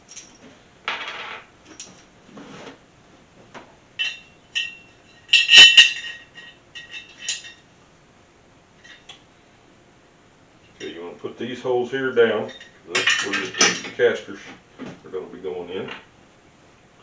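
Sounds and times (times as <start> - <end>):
washers and bolts clinking: 4.0 - 7.6, 12.4 - 14.2.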